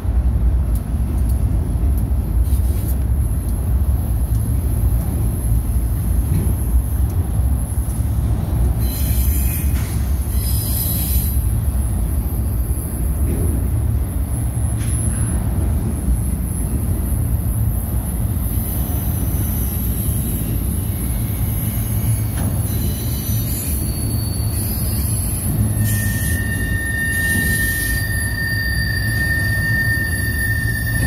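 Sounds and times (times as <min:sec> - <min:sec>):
wheels rumbling on rail: 0:00.0 - 0:31.0
high-pitched wheel squeals: 0:08.8 - 0:13.9, 0:18.3 - 0:31.0.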